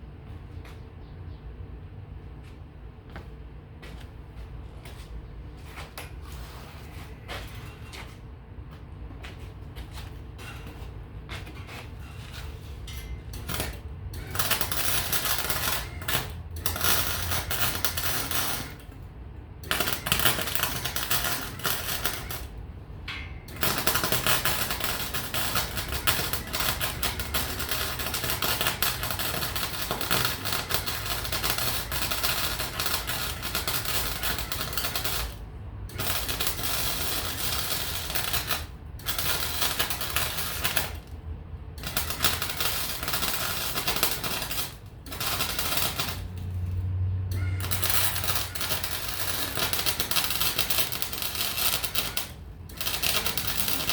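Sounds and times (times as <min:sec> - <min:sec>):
welding arc crackling: 0:12.0 - 0:53.9.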